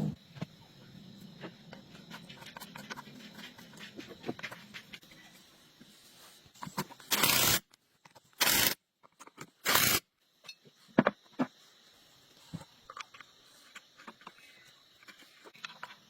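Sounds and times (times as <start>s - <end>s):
short hissing bursts: 5.6s - 7.7s, 8.4s - 8.8s, 9.6s - 10.0s.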